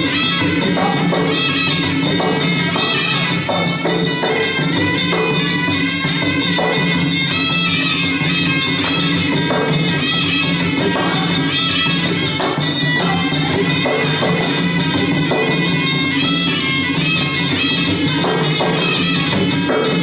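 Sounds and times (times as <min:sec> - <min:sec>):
drums beating: 0:00.0 - 0:20.0
reed pipe melody: 0:00.0 - 0:20.0
small hand cymbals: 0:00.0 - 0:20.0.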